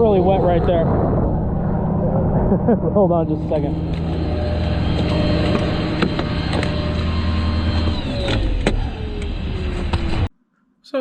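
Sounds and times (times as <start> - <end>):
engine running: 0.0 - 10.3
tone falling in pitch: 3.4 - 8.3.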